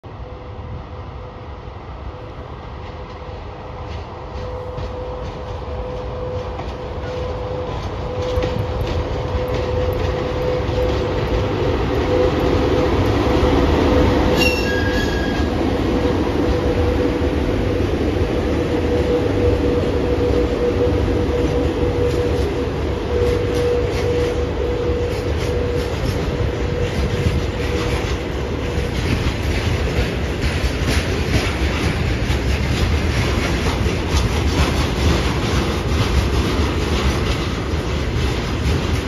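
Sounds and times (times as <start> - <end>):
electric locomotive hum: 0.0 - 39.0
heavy rumble of wheels on rail: 0.0 - 39.0
brief high-pitched squeal: 14.3 - 15.5.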